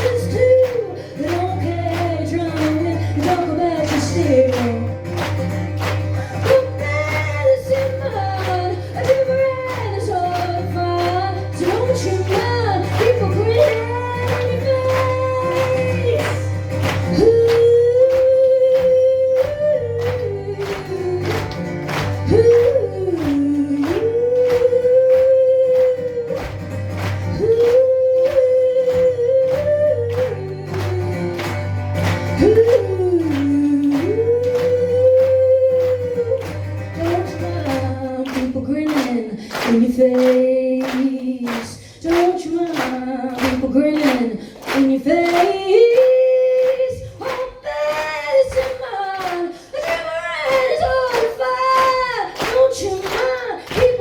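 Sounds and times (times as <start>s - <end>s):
woman singing blues: 0.0s - 54.0s.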